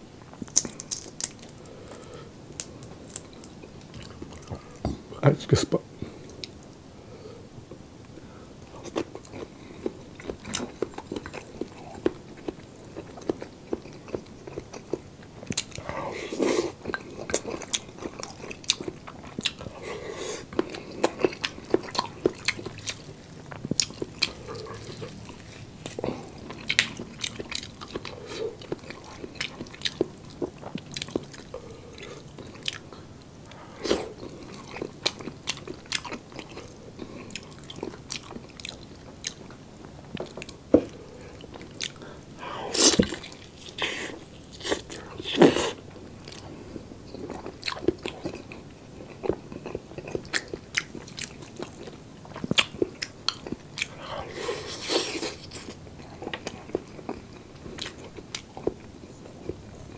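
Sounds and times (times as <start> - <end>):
food crackles: 0.2 - 4.9
wet chewing clicks and smacks: 20.5 - 31.6, 47.1 - 54.0.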